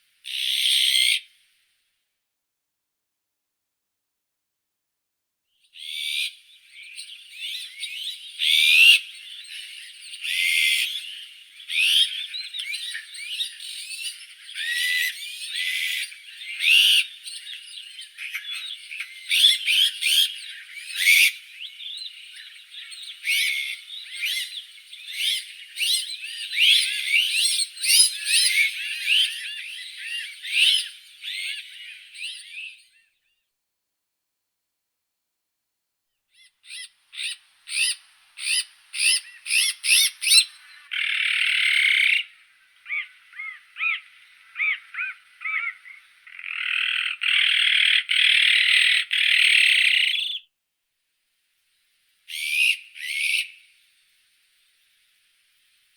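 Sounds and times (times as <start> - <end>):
bird chirps and whistles: 5.8 - 33.1, 36.4 - 42.3, 52.3 - 53.7.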